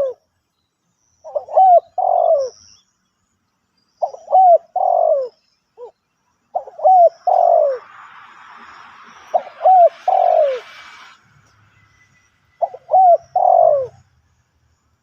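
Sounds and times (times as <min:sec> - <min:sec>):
dove cooing: 0:00.0 - 0:00.2, 0:01.3 - 0:02.6, 0:04.0 - 0:05.9, 0:06.6 - 0:07.9, 0:09.3 - 0:10.8, 0:12.6 - 0:14.0
faint hiss: 0:06.4 - 0:12.6.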